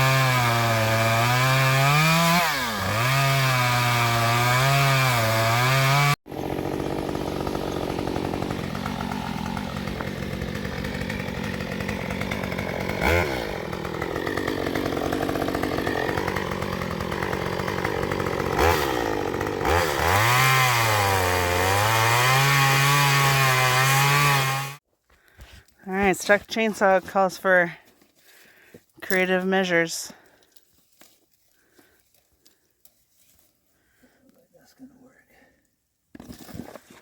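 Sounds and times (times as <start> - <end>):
chainsaw cutting wood: 0.0 - 27.6.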